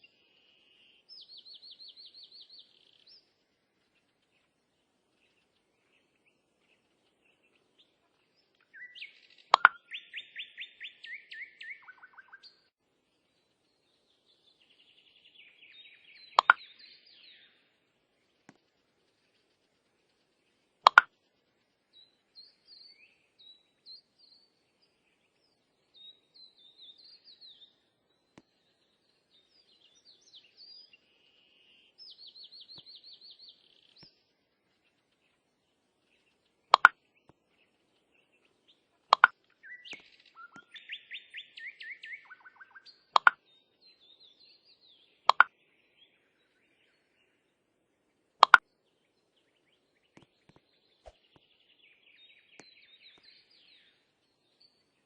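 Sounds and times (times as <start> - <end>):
small birds chirping and trilling: 0.0 - 55.0.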